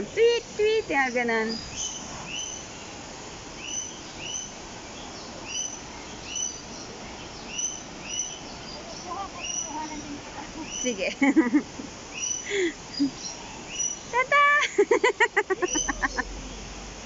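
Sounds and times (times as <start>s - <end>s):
steady background hiss: 0.0s - 17.0s
bird chirping: 0.9s - 3.0s, 3.6s - 11.1s, 12.1s - 14.2s, 15.5s - 16.8s.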